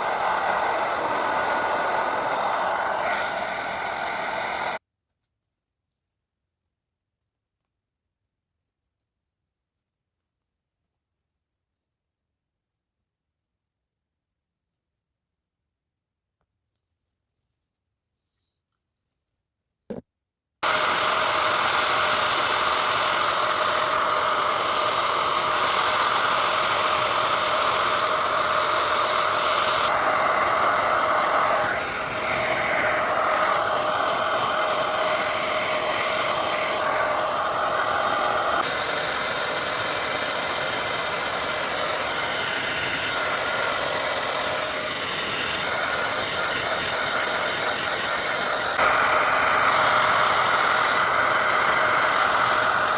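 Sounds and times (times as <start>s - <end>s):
hair dryer running: 0.0s - 4.8s, 20.6s - 52.9s.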